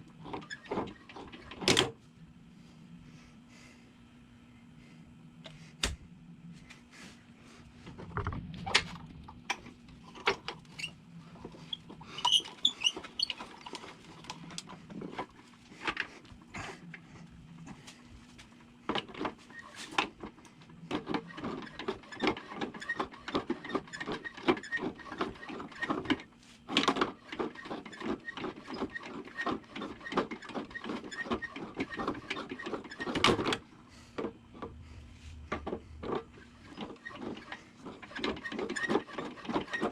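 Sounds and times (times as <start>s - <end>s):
faint steady hum: 0.0s - 22.0s, 31.6s - 39.1s.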